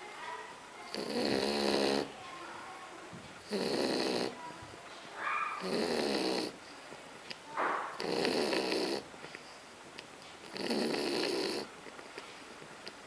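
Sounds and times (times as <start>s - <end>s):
dog snoring: 0.9s - 2.2s, 3.4s - 4.4s, 5.6s - 6.6s, 7.9s - 9.1s, 10.4s - 12.0s.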